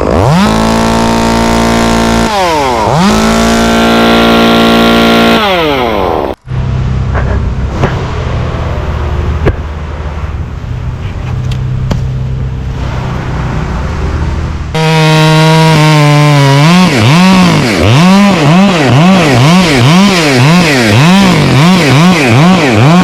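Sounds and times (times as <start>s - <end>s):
chainsaw engine revving: 0.0s - 6.4s, 14.7s - 23.0s
low engine hum: 6.3s - 14.8s.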